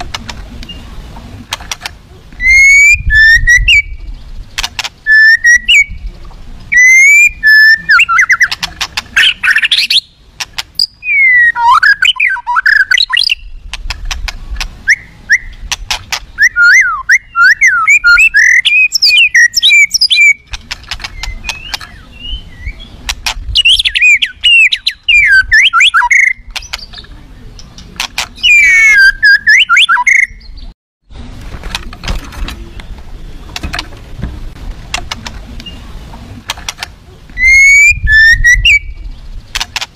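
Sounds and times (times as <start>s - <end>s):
bird singing whistled phrases: 2.4s - 4.0s, 5.0s - 6.1s, 6.7s - 8.5s, 9.2s - 10.2s, 10.8s - 13.6s, 14.8s - 15.6s, 16.4s - 20.4s, 21.1s - 23.0s, 23.6s - 27.1s, 28.4s - 30.7s, 37.4s - 39.1s
sharp clicks: 4.6s - 5.0s, 13.0s - 14.8s, 20.0s - 22.0s, 26.1s - 27.1s, 27.7s - 28.5s, 36.4s - 37.0s, 39.5s - 39.9s.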